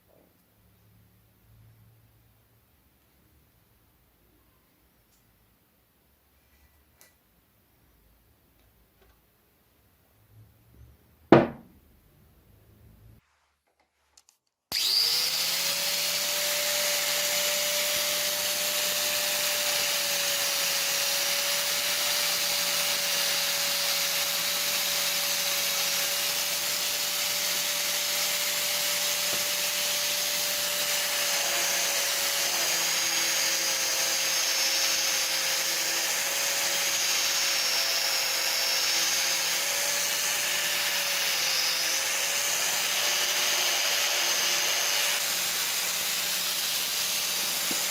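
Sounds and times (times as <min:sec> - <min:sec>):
power tool grinding metal: 0:14.7 - 0:47.9.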